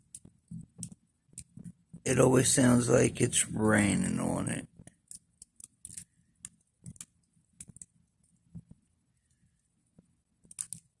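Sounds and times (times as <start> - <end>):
clicks and crackles from a blanket: 0.0 - 2.1, 4.6 - 8.8, 9.9 - 11.0.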